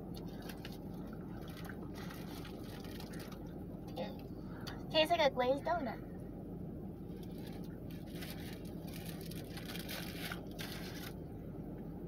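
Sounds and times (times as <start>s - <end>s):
steady low hum: 0.0s - 12.0s
faint rustling and handling: 0.2s - 4.7s, 7.0s - 11.2s.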